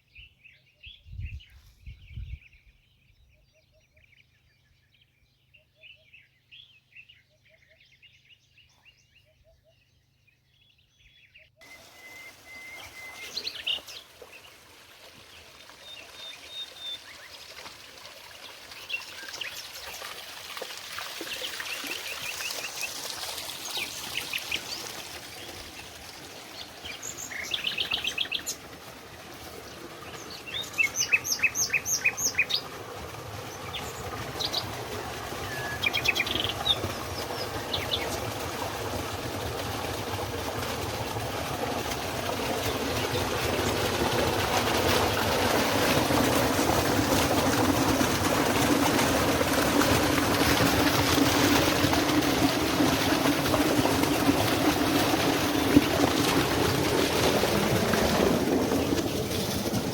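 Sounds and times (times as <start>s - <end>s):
birds chirping: 5.1s - 17.6s, 21.2s - 28.7s, 29.7s - 32.7s, 33.5s - 38.3s.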